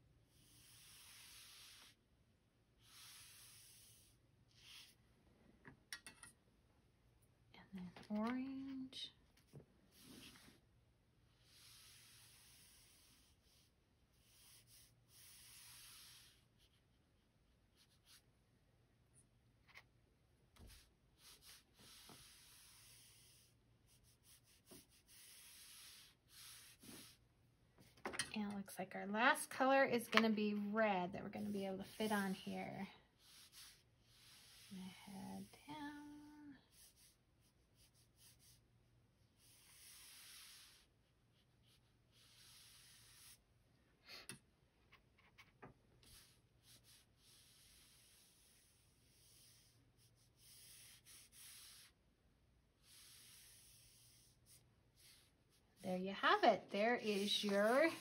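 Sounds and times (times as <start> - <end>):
paintbrush swishing on paper: 0.3 - 2.0, 2.8 - 5.0, 9.9 - 10.6, 11.3 - 17.0, 17.7 - 18.3, 20.6 - 27.2, 31.2 - 38.6, 39.3 - 43.4, 46.0 - 52.0, 52.7 - 58.0.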